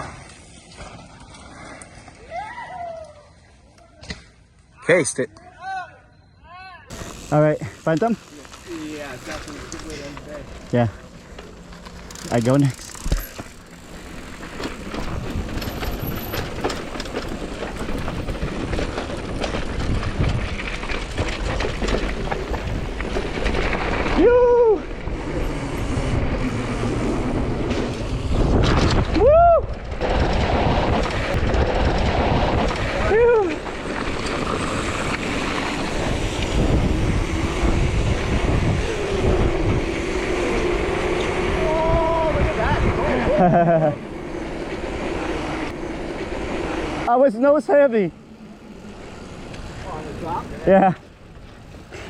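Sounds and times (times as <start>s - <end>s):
bike rattling over bumps: 6.9s - 52.0s
tyres rolling over dirt: 6.9s - 52.0s
wind rushing: 24.8s - 50.6s.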